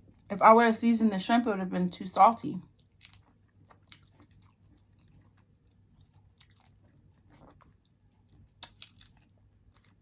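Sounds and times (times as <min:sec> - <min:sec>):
person chewing food: 0:02.7 - 0:10.0
crisp crunches: 0:02.8 - 0:05.2, 0:08.6 - 0:10.0.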